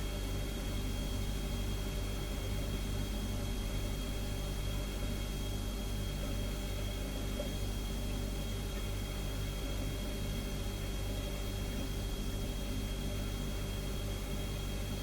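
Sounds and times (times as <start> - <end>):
refrigerator humming: 0.0 - 15.0.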